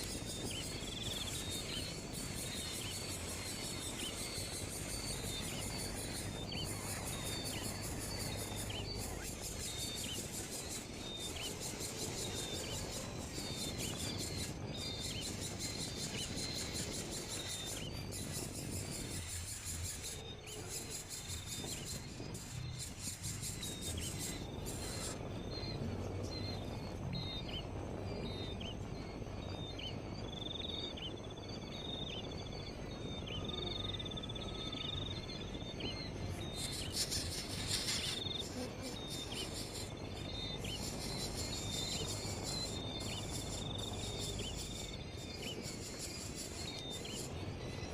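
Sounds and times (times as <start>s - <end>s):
bird chirping and trilling: 0.0s - 47.9s
high insect buzz: 36.2s - 47.4s.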